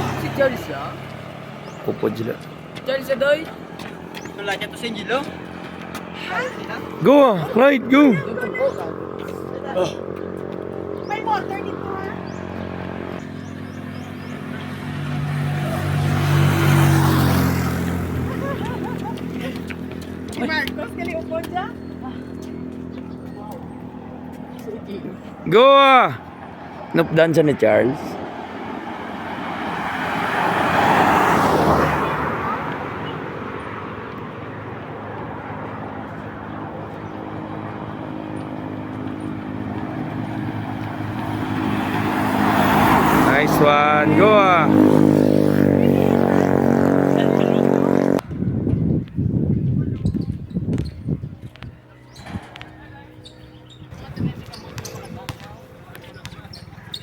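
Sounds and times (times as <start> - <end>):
vehicle engine humming: 0.0 - 57.0
motorcycle engine running: 43.2 - 55.5.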